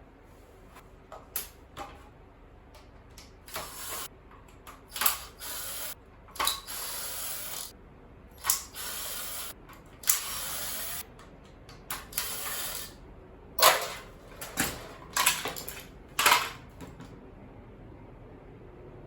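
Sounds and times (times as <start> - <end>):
hard parts knocking and clattering: 13.6 - 17.2.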